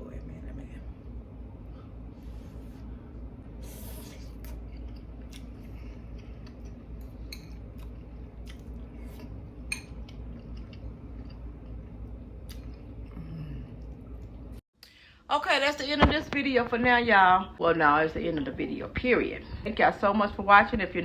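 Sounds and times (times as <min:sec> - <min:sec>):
steady low hum: 0:00.0 - 0:21.0
person chewing: 0:03.7 - 0:14.4.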